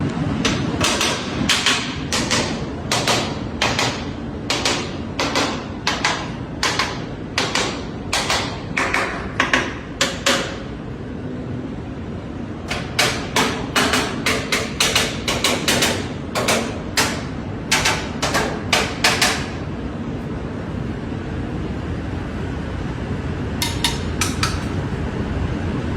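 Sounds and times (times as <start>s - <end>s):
hammer tapping on metal: 0.4s - 10.7s, 12.7s - 19.6s, 23.6s - 24.8s.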